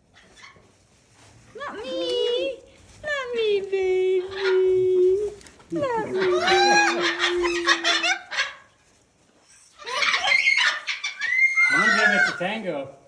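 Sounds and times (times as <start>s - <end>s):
parrots chattering and calling: 6.0s - 8.7s, 9.8s - 12.6s.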